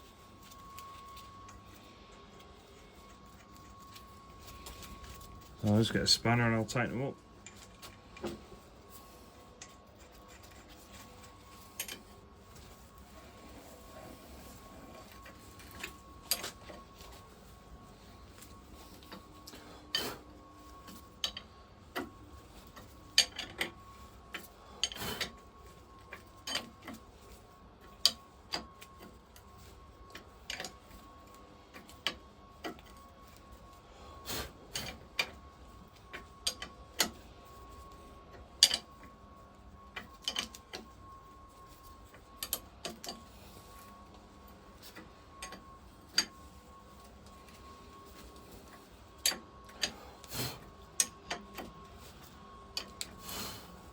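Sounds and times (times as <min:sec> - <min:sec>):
faint steady tone: 0:00.0 - 0:53.9.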